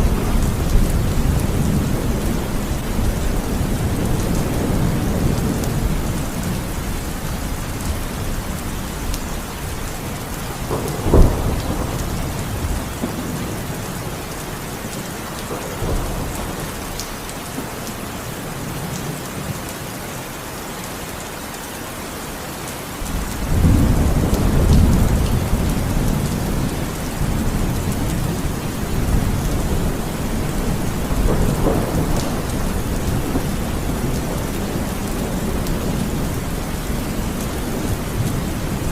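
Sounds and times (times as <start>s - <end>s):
heavy rain falling: 0.0s - 38.9s
low roll of thunder: 9.6s - 13.9s, 23.1s - 38.9s
sharp thunderclap: 10.5s - 13.6s, 23.1s - 38.9s.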